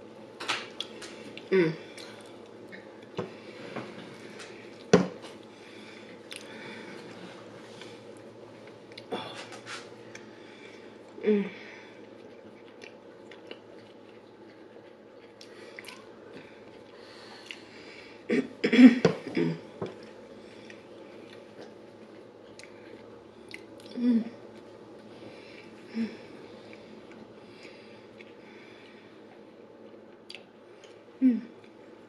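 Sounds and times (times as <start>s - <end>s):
person chewing: 4.4s - 6.6s, 11.9s - 17.9s, 19.9s - 25.8s, 26.6s - 31.0s.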